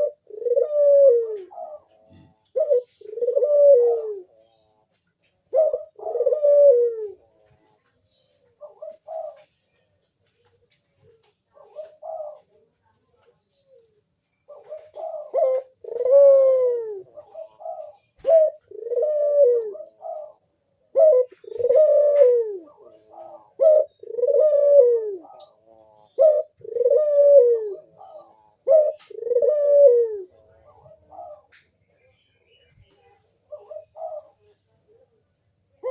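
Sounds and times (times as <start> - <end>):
dove cooing: 0.0 - 9.7, 10.4 - 35.9.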